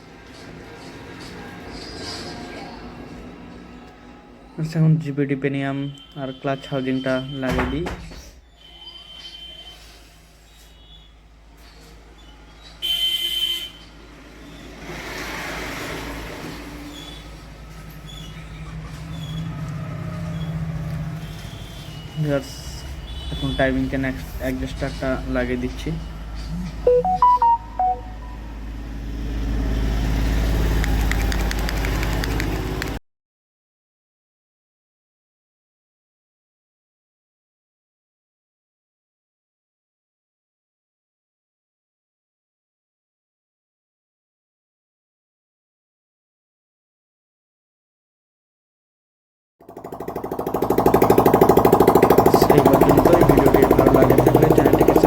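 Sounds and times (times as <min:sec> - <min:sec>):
short beeping tones: 0:26.9 - 0:28.6
engine running: 0:49.6 - 0:55.0.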